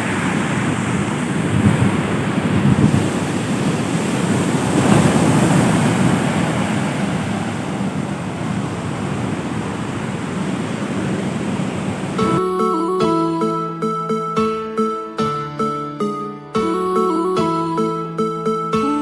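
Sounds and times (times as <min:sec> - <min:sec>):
surf washing onto beach: 0:00.0 - 0:12.2
wind buffeting microphone: 0:00.0 - 0:12.2.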